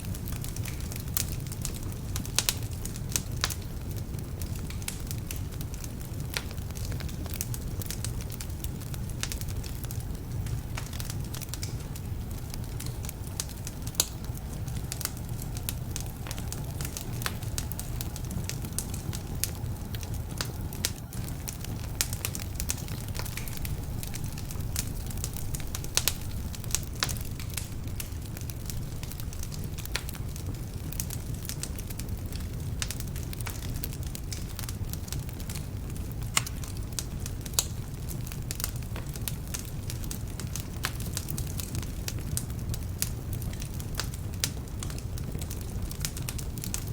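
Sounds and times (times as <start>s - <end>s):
wood fire crackling and popping: 0.0s - 46.9s.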